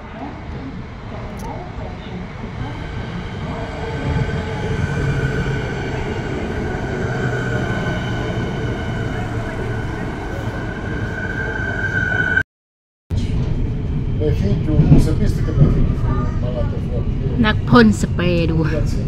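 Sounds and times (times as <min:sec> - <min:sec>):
high even train whine: 0:00.0 - 0:12.4
train cars rumbling: 0:00.0 - 0:12.4.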